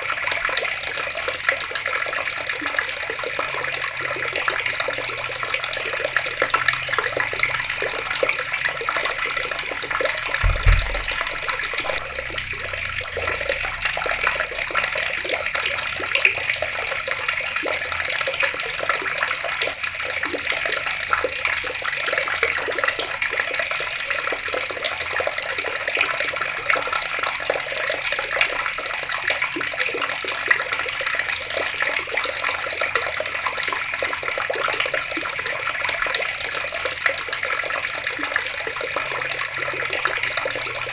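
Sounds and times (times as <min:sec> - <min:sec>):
water pouring from a tap: 0:00.0 - 0:40.9
low thump: 0:10.4 - 0:13.7.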